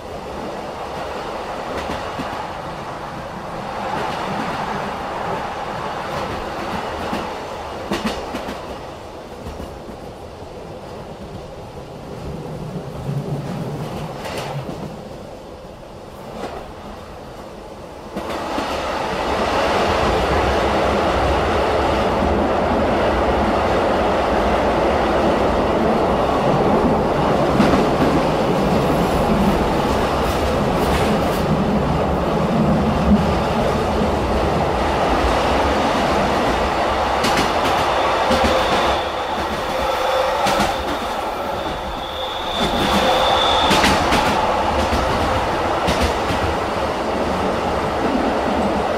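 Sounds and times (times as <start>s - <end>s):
train wheels rumbling on rails: 0.0s - 48.9s
high wheel squeal: 37.5s - 44.8s.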